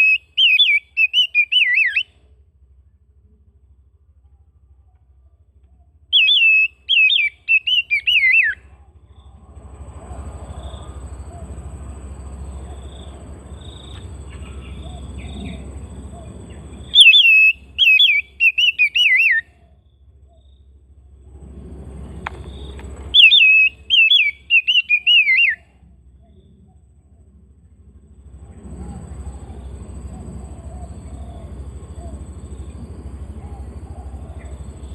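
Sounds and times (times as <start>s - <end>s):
bird warbling whistled song: 0.0s - 2.2s, 6.1s - 8.7s, 12.6s - 20.5s, 22.5s - 26.5s
low hum: 0.0s - 34.9s
faint chirps: 28.2s - 34.9s.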